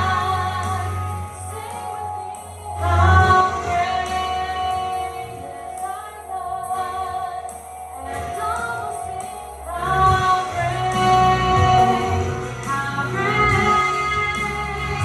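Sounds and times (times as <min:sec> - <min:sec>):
church worship music with singing: 0:00.0 - 0:15.0
low bass: 0:09.4 - 0:15.0.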